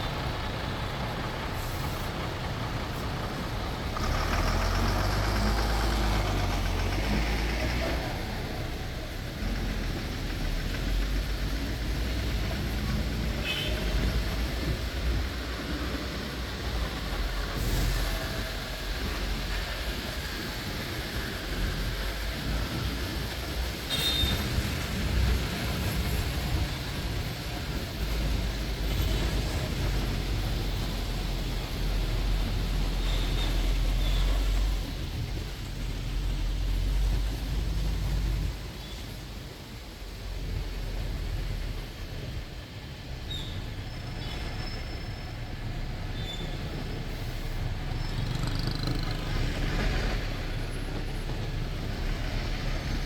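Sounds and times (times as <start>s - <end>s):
bus engine and road rumble: 0.0s - 53.0s
rain and wet traffic hiss: 0.0s - 53.0s.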